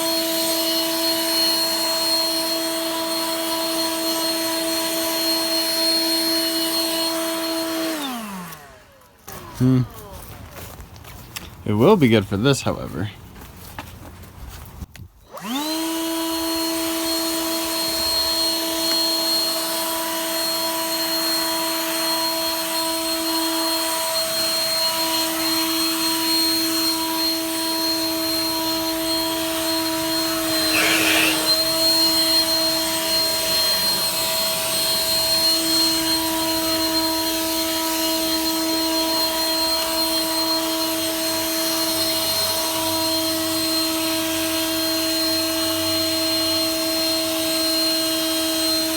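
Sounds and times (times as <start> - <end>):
leaf blower motor whine: 0.0 - 10.8, 15.2 - 48.9.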